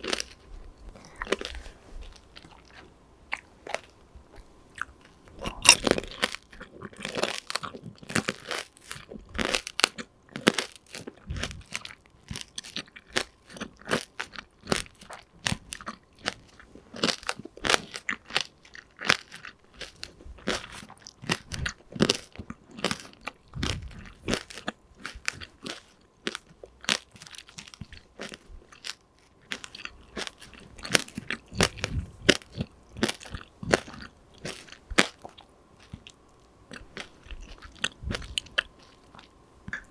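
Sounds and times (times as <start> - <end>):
crunching candied fruit: 0.0 - 39.9.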